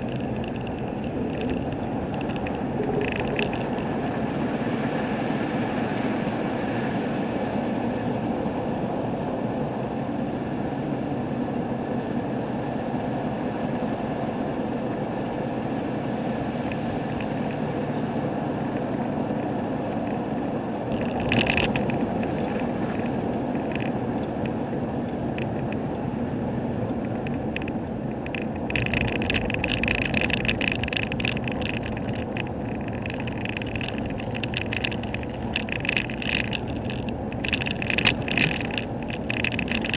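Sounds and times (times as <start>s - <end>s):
crackling: 0.0s - 4.2s, 20.9s - 26.1s, 26.9s - 39.9s
engine and road rumble: 0.0s - 39.9s.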